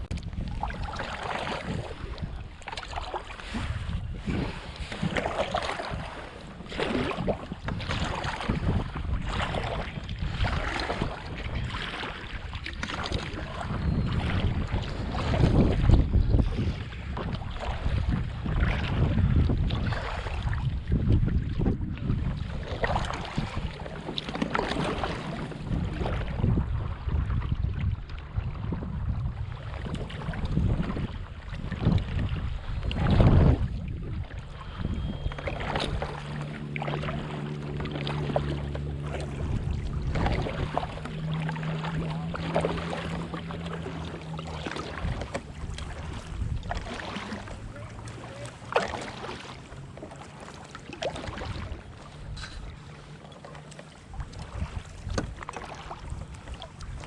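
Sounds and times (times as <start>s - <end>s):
knocks and splashes: 0.0s - 57.0s
water around kayak: 0.0s - 57.0s
wind on microphone: 0.0s - 57.0s.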